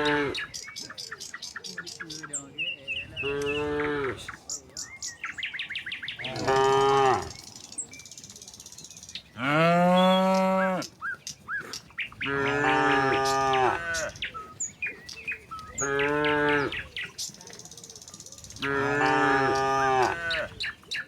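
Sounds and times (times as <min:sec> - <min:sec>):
small birds chirping: 0:00.0 - 0:21.0
cattle mooing: 0:06.2 - 0:07.4, 0:12.2 - 0:14.2, 0:15.8 - 0:16.8, 0:18.6 - 0:20.5.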